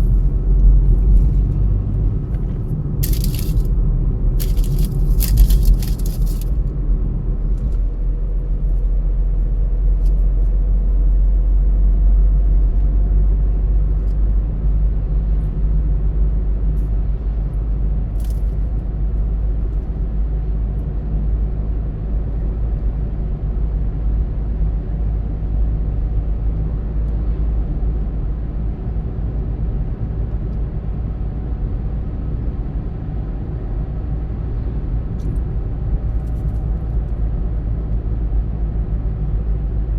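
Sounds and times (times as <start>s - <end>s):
car engine and tyres rumbling: 0.0s - 39.9s
crackling noises: 2.2s - 6.6s.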